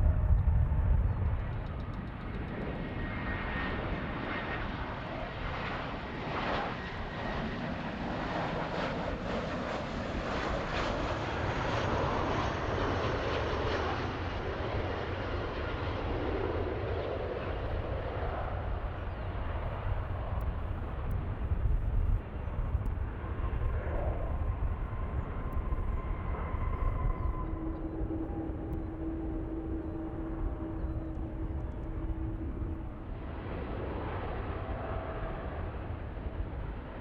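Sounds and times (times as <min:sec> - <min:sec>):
jet plane passing: 0:00.0 - 0:37.0
faint high whine: 0:18.3 - 0:37.0.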